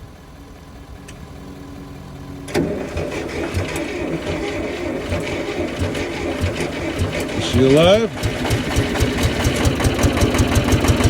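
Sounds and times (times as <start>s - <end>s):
old tractor engine cranking: 2.5s - 11.0s.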